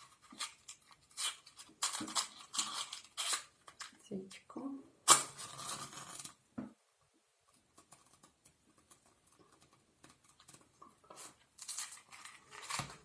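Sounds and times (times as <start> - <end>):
small objects handled on table: 7.4 - 13.0.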